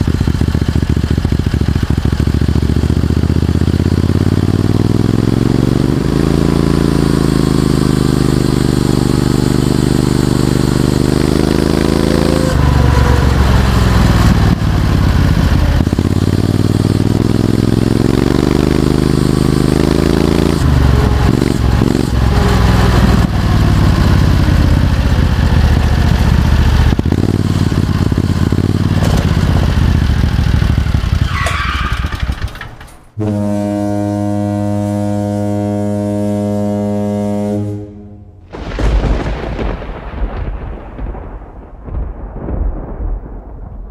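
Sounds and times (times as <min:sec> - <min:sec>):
go-kart engine revving: 0:00.0 - 0:33.6
deep horn-like tone: 0:10.6 - 0:14.6, 0:33.2 - 0:38.6.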